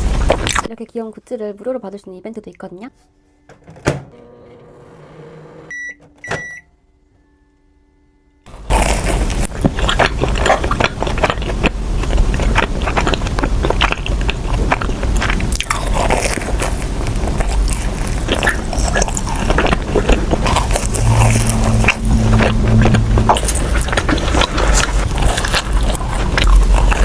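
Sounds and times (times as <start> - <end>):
biting and chewing doughnut: 8.5 - 27.0.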